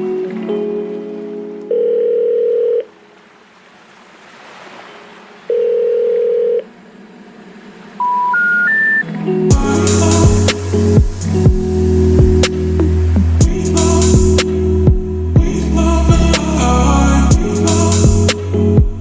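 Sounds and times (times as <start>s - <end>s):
music: 0.0s - 1.7s, 8.1s - 19.0s
telephone ringing tone: 1.7s - 2.9s, 5.5s - 6.7s, 8.0s - 9.1s
short rising beeps: 8.0s - 9.1s
loud bass-heavy music: 9.5s - 19.0s.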